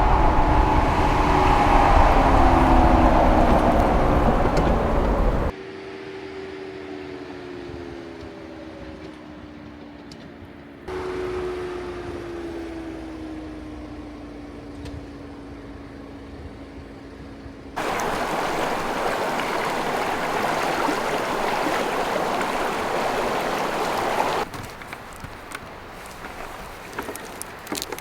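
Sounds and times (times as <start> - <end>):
stream rushing: 0.0 - 5.5, 17.8 - 28.0
vehicle engine droning: 0.0 - 5.5, 17.8 - 24.5.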